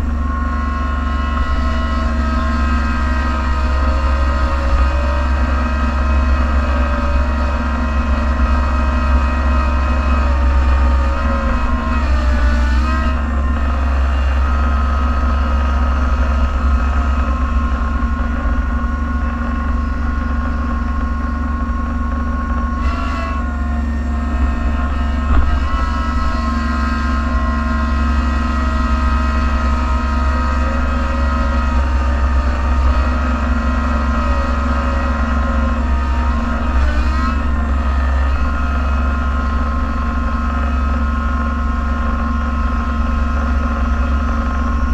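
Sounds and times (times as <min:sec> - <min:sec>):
engine whine: 0:00.0 - 0:44.9
vehicle engine drone: 0:00.0 - 0:44.9.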